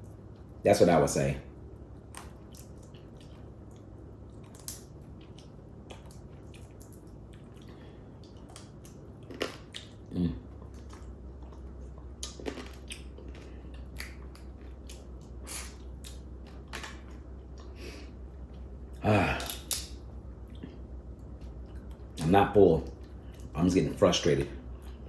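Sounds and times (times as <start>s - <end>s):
chewing with wet mouth clicks: 2.0s - 23.6s, 24.7s - 25.0s
crab shells cracking: 4.4s - 10.0s, 19.2s - 20.0s
low vocal murmur: 10.1s - 10.5s.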